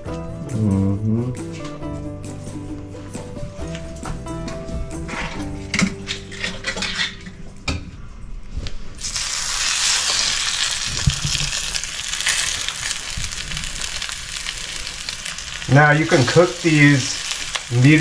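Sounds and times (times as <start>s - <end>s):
patties sizzling in a skillet: 9.0s - 18.0s.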